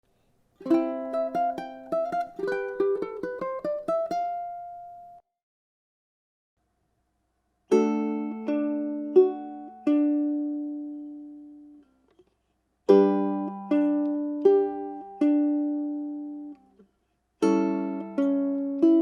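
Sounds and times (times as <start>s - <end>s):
ukulele chord strummed: 0.6s - 5.2s, 7.7s - 11.9s, 12.9s - 16.8s, 17.4s - 19.0s.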